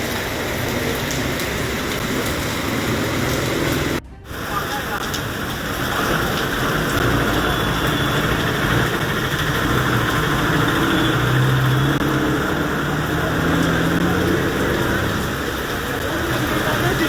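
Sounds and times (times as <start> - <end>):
heavy rain: 0.0 - 17.0
vehicle engine running: 6.0 - 17.0.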